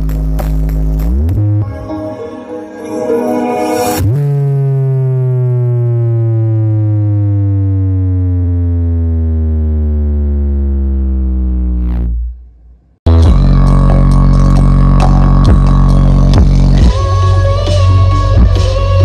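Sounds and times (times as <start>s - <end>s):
bass-heavy dance music: 0.0s - 12.3s, 13.1s - 19.0s
buzzy synthesizer tone sliding down: 0.0s - 12.4s.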